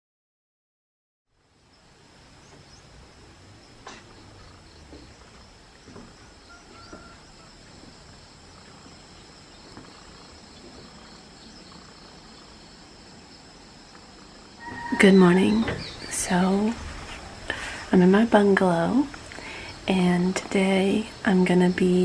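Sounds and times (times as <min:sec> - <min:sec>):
insect chorus high tones: 0:01.4 - 0:22.0
soft knocks: 0:03.8 - 0:07.2, 0:09.6 - 0:11.1.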